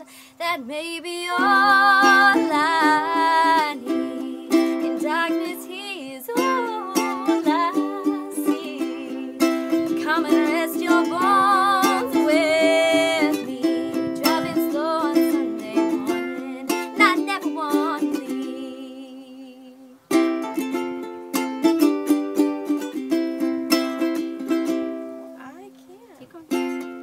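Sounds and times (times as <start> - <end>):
woman singing wordless melody: 0.0 - 20.2
ukulele strumming: 0.8 - 27.0.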